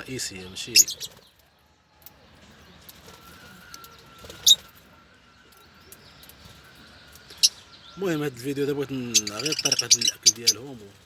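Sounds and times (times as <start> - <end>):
bird chirp: 0.0 - 11.0.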